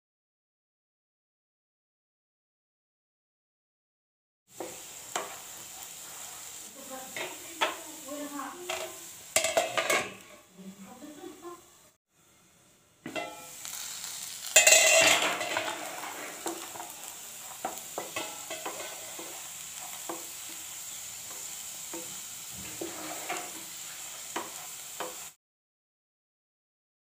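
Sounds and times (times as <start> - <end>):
vegetables sizzling in a wok: 4.5 - 25.4
spatula scraping and tapping: 4.6 - 6.3, 7.2 - 7.8, 8.7 - 10.4, 14.6 - 20.6, 21.2 - 25.3.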